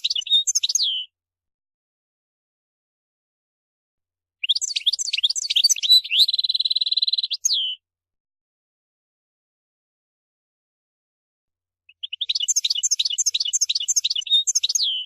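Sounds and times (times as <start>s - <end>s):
goldfinch singing: 0.0s - 1.1s, 4.4s - 7.8s, 11.9s - 15.0s.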